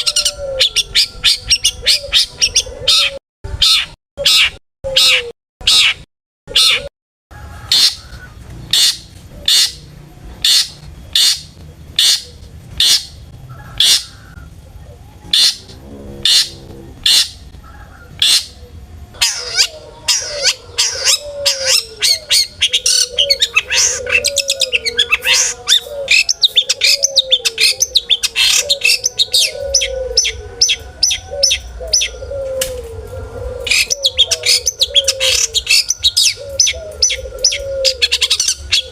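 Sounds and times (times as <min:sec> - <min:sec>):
bird singing: 0:00.0 - 0:38.9
low wavering bird phrase: 0:13.5 - 0:38.9.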